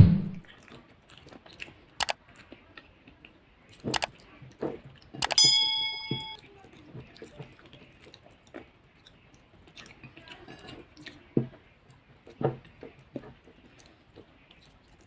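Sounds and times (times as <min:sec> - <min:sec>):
close-up chewing: 0:00.5 - 0:05.2, 0:06.6 - 0:15.0
short clicks: 0:05.2 - 0:06.4.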